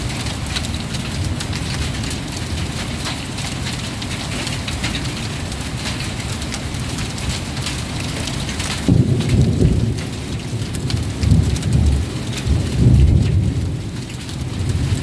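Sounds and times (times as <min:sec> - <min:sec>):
loud thunder clap: 0:08.8 - 0:13.8.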